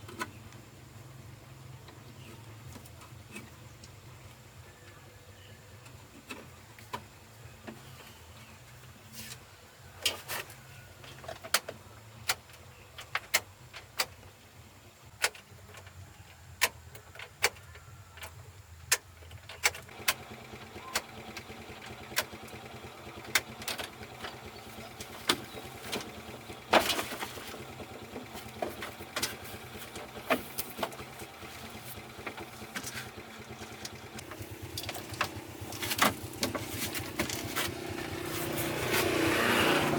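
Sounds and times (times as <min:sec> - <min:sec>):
low steady hum: 0:19.9 - 0:39.9.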